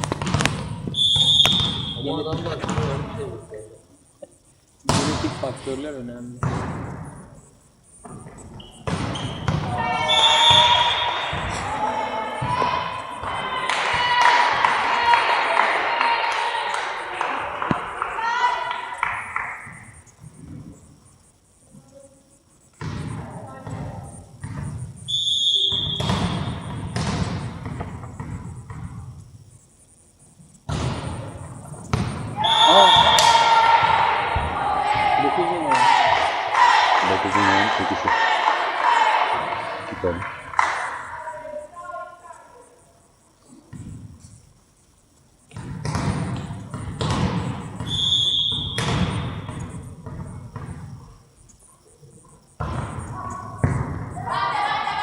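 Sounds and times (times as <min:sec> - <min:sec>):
ball being kicked: 0:00.0 - 0:03.1, 0:25.7 - 0:29.0, 0:45.5 - 0:50.9
whistle blast: 0:00.9 - 0:02.3, 0:08.6 - 0:11.7, 0:25.1 - 0:26.7, 0:32.4 - 0:34.4, 0:47.8 - 0:49.3.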